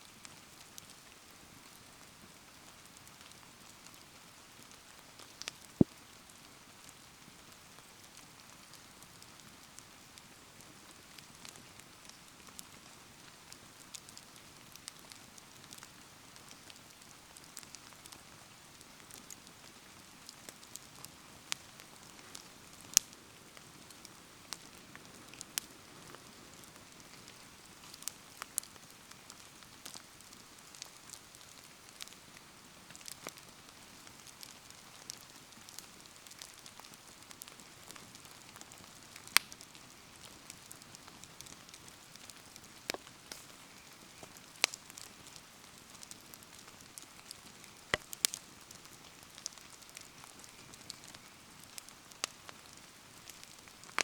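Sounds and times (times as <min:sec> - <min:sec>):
bonfire crackling and popping: 0:00.0 - 0:54.0
rain falling: 0:00.3 - 0:54.0.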